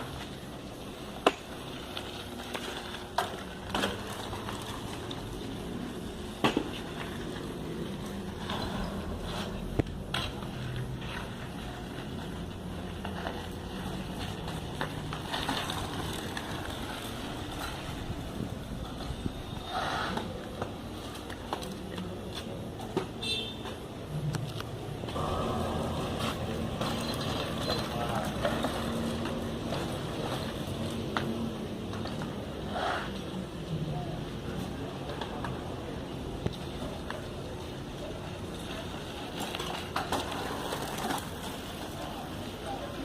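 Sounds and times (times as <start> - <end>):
bicycle tyres rumbling: 0.0 - 43.0
bike knocks and rattles: 6.3 - 8.9.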